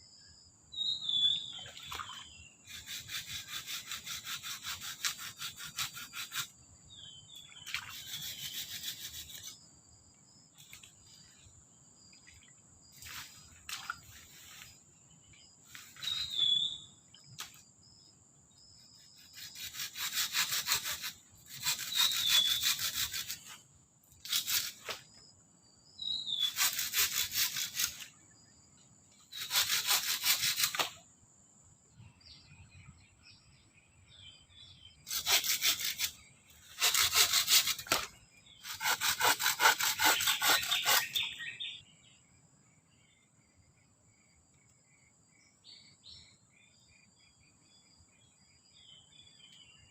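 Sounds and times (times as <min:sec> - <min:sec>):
faint bird chirps: 0:00.0 - 0:03.9, 0:06.9 - 0:19.9, 0:24.8 - 0:26.8, 0:40.2 - 0:49.9
hand saw cutting wood: 0:02.7 - 0:06.6, 0:07.9 - 0:09.5, 0:19.2 - 0:23.6, 0:24.2 - 0:24.9, 0:26.4 - 0:28.1, 0:29.3 - 0:31.0, 0:35.1 - 0:41.3.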